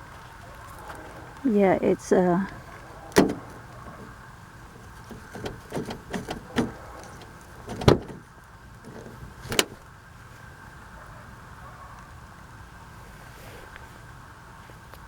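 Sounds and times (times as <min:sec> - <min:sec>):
light clicks and knocks: 0:02.5 - 0:09.9.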